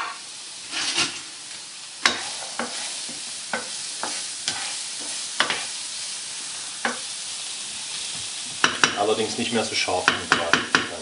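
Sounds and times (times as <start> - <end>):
spatula scraping pan: 0.0 - 1.2, 2.0 - 6.0
food sizzling in frying pan: 0.0 - 11.0.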